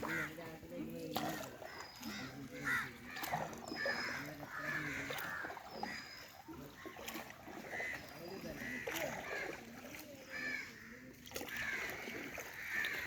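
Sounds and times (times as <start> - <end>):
crows cawing: 0.0 - 0.4, 2.1 - 6.2, 10.3 - 13.0.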